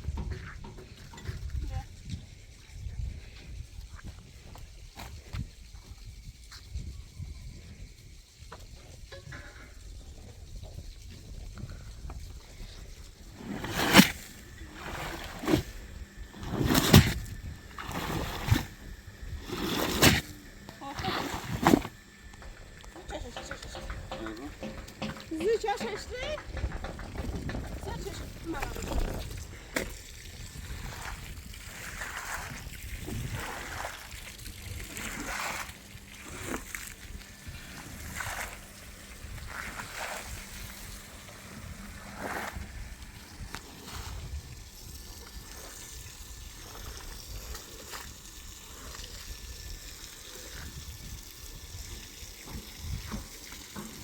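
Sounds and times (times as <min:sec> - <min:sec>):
water splashing and sloshing: 0:12.4 - 0:54.0.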